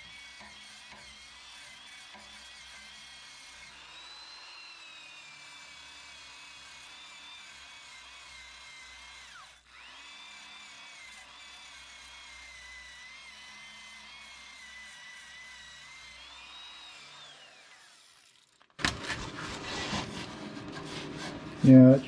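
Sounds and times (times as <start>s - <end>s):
electric drill whining: 0.0s - 20.4s
wire wheel scrubbing metal: 18.8s - 22.0s.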